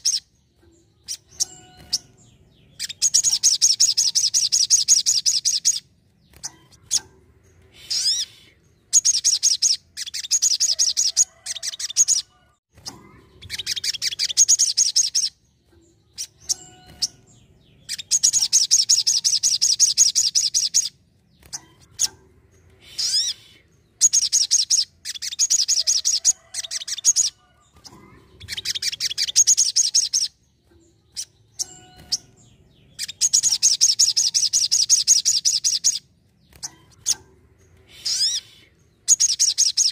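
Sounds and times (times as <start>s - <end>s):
sunbird trilling song: 0.0s - 39.9s.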